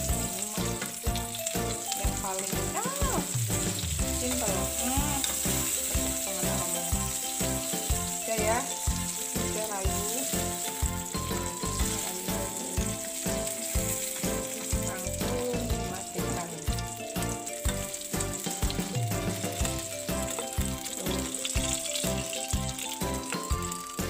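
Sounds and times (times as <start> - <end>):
background music with beat: 0.0 - 24.0
food sizzling in hot oil: 0.0 - 24.0
metal ladle stirring in wok: 4.0 - 12.0.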